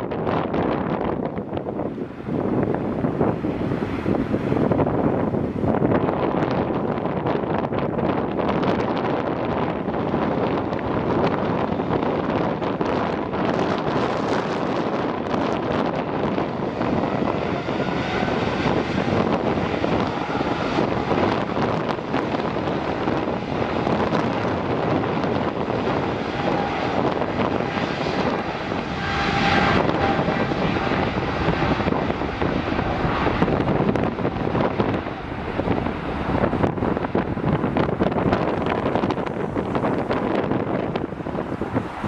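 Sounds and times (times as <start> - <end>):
jet airliner engines passing: 0.0 - 42.0.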